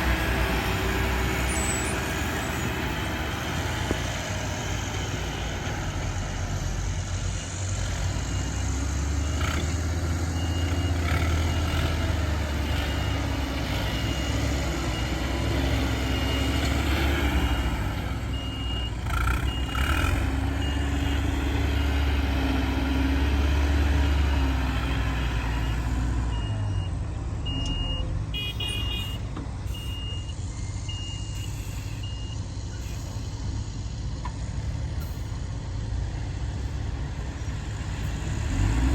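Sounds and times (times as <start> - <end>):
heavy diesel engine under load: 0.0 - 38.9
reversing alarm beeping: 7.2 - 22.2, 25.4 - 33.1.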